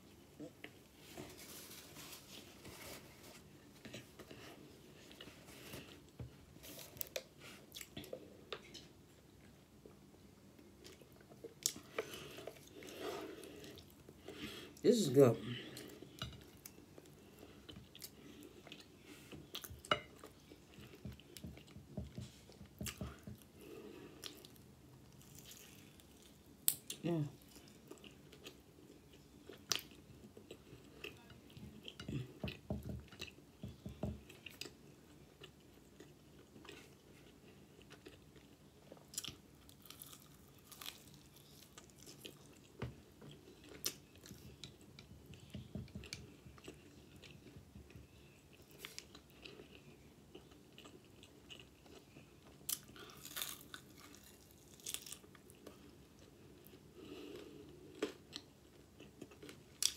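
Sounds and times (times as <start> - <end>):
person chewing chicken wings: 34.2 - 59.9.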